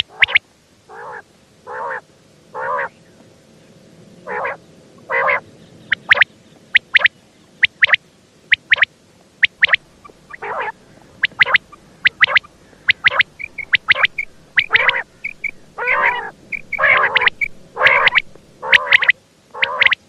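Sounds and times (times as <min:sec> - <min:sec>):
quail rasping calls: 0:00.0 - 0:02.0, 0:02.6 - 0:03.0, 0:04.3 - 0:20.0
quail short sharp notes: 0:05.9 - 0:20.0.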